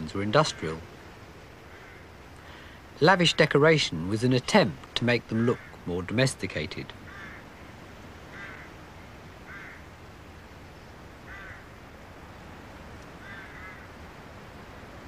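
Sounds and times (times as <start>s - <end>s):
background hiss: 0.0s - 15.0s
short bird calls: 7.0s - 7.5s, 13.1s - 14.0s.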